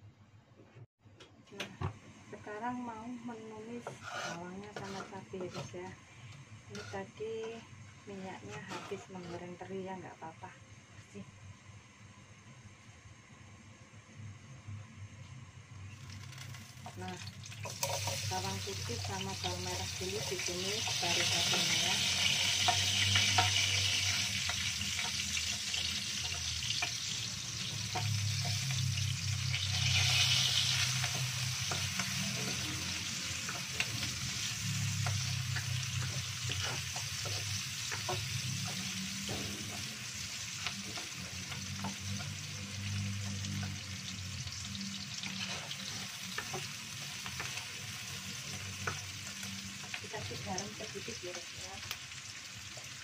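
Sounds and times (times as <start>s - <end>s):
food sizzling in hot oil: 2.3s - 12.4s, 15.3s - 53.0s
spatula knocking and scraping pan: 3.7s - 5.9s, 6.7s - 7.6s, 8.4s - 9.5s, 31.0s - 40.0s.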